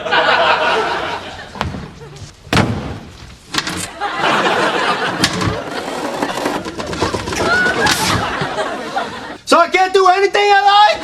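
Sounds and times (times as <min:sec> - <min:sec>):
sharp knocks and thuds: 0:01.6 - 0:03.7
loud slam: 0:02.5 - 0:03.2.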